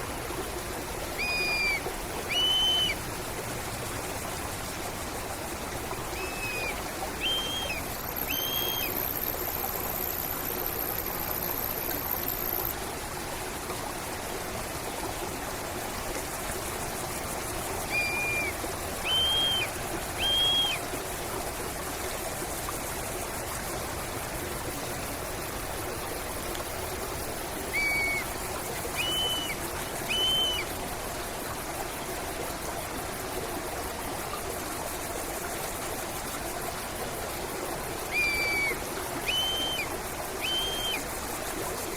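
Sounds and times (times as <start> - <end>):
stream running water: 0.0 - 41.9
thin high steady tone: 1.1 - 3.0, 5.9 - 12.8, 17.2 - 20.9, 27.5 - 30.8, 38.0 - 41.4
bird calling short notes: 1.2 - 3.0, 6.2 - 8.9, 17.9 - 20.8, 27.7 - 28.2, 29.0 - 30.6, 38.1 - 41.0.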